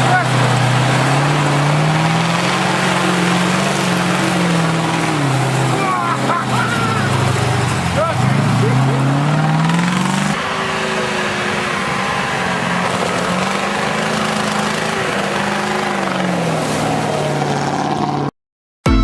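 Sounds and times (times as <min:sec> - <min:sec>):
truck engine under load: 0:00.0 - 0:18.3.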